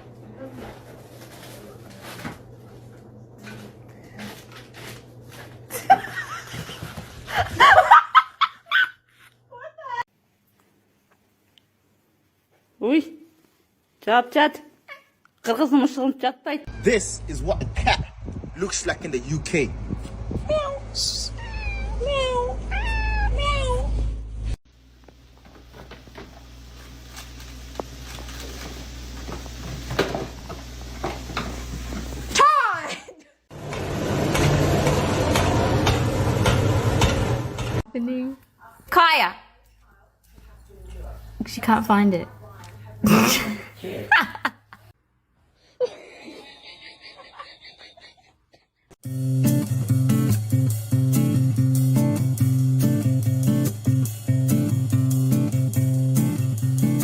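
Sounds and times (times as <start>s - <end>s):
cat meowing: 20.6s - 23.9s
laughter-like vocal sounds: 43.0s - 44.9s, 45.8s - 48.9s.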